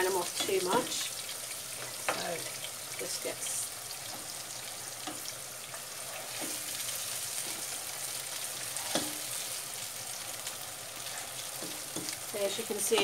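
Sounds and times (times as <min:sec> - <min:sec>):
hot fat sizzling: 0:00.0 - 0:13.0
spatula scraping frying pan: 0:04.2 - 0:09.6.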